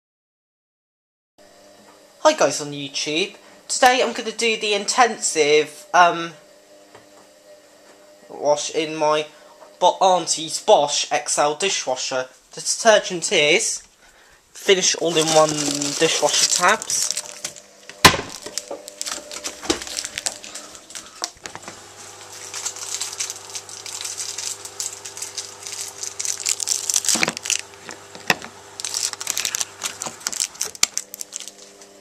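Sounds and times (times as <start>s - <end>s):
wrapper crinkling: 14.8s - 32.0s.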